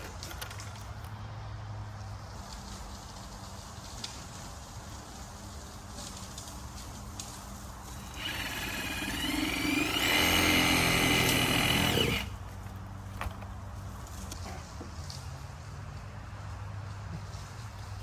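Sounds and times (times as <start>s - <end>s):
power saw whining: 7.9s - 13.4s.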